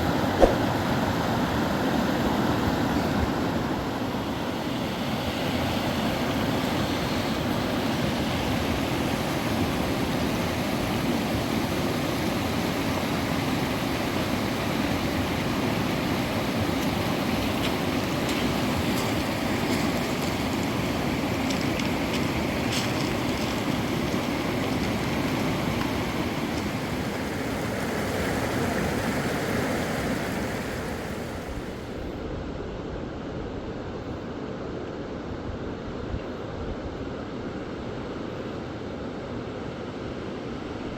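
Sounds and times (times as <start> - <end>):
river water rushing: 0.0 - 32.0.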